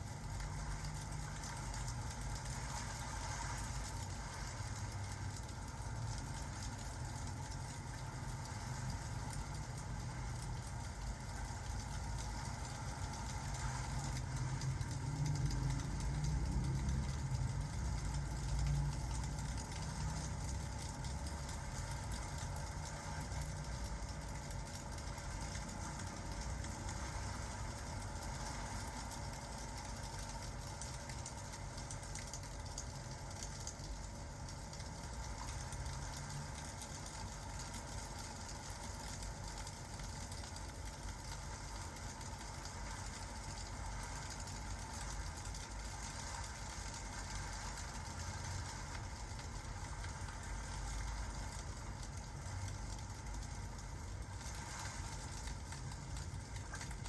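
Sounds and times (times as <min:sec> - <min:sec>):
steady low rumble: 0:00.0 - 0:30.8
fireplace crackling: 0:00.0 - 0:57.0
rain falling: 0:00.0 - 0:57.0.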